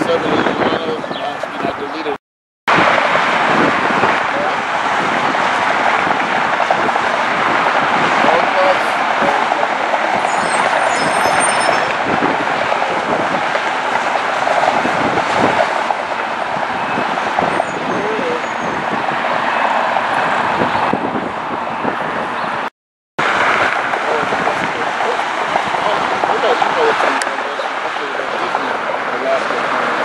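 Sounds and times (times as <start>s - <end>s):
jet engines roaring: 0.0s - 2.1s, 2.7s - 30.0s.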